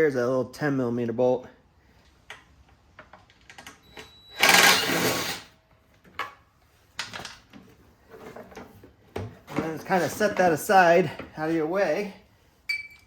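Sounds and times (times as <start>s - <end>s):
power tool rattling: 4.4s - 5.5s.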